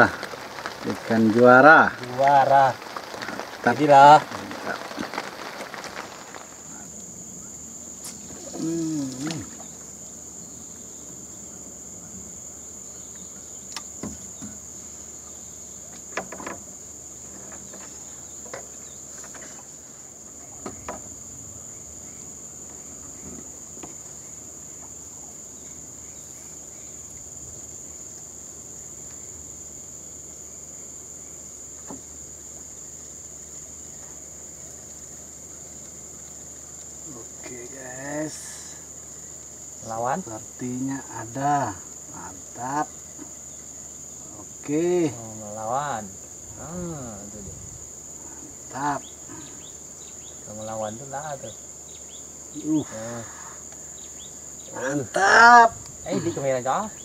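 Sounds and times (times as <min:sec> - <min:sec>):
insects droning: 0:00.0 - 0:57.0
voice-like call: 0:54.7 - 0:55.8.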